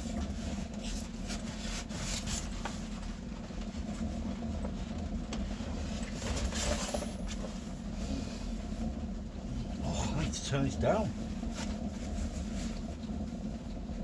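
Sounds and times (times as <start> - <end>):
steady low rumble: 7.6 - 14.0.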